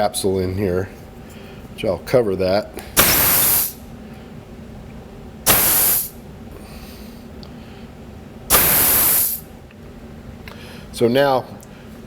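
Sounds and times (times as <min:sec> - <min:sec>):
compressed air blasts: 0:02.9 - 0:03.9, 0:05.4 - 0:06.2, 0:08.5 - 0:09.5.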